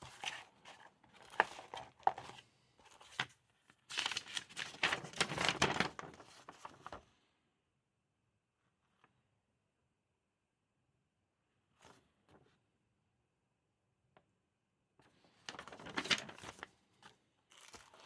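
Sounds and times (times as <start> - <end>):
packaging crinkling: 15.5 - 16.7.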